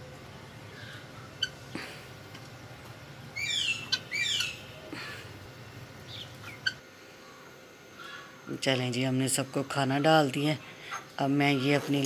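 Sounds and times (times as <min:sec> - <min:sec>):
bird calling loudly: 0:03.4 - 0:04.7.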